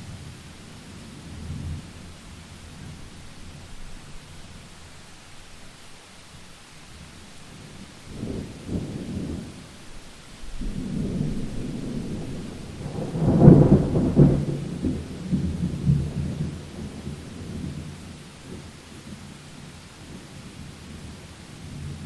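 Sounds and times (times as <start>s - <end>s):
faint hiss of rain: 0.0s - 22.0s
thunder rumbling: 7.6s - 18.8s.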